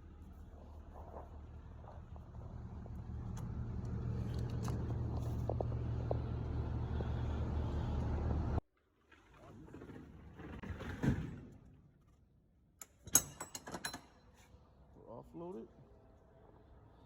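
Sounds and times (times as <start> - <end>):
vehicle engine rumbling: 0.0 - 8.6.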